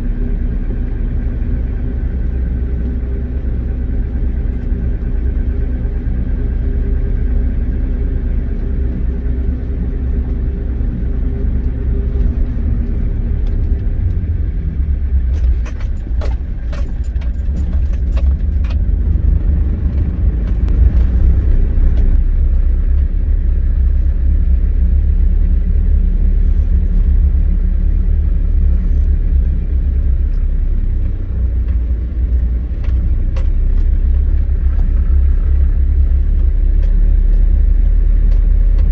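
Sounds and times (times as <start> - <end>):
truck engine rumbling: 0.0 - 38.9
metallic rattles and knocks: 15.3 - 22.2.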